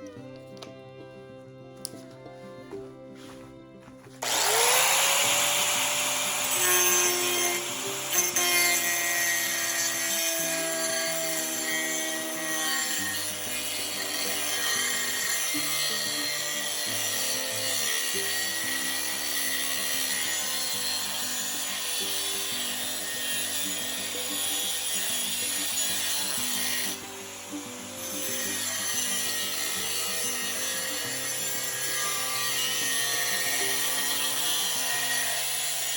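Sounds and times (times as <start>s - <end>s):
background music: 0.0s - 35.9s
grinder grinding steel: 4.2s - 35.9s.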